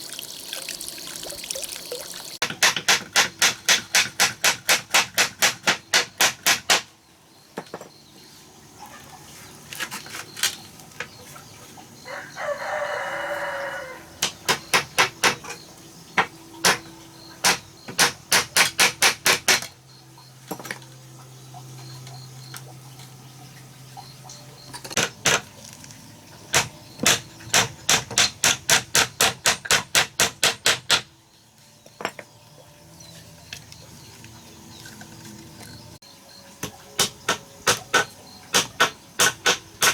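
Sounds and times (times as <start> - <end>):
hammer striking wood: 2.4 - 6.9, 14.2 - 15.5, 16.2 - 19.7, 26.6 - 31.1, 36.6 - 39.9
rooster crowing: 12.0 - 14.2.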